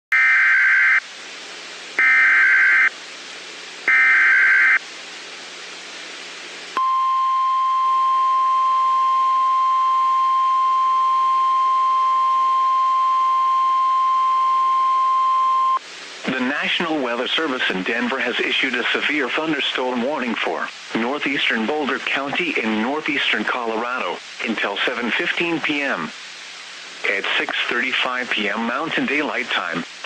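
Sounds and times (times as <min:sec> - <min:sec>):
radio hiss: 0:00.2 - 0:06.8, 0:15.8 - 0:30.0
screeching data bursts: 0:02.0 - 0:02.9, 0:03.9 - 0:04.8
single-pitch alarm tone: 0:02.0 - 0:02.9, 0:03.9 - 0:04.8, 0:06.8 - 0:15.8.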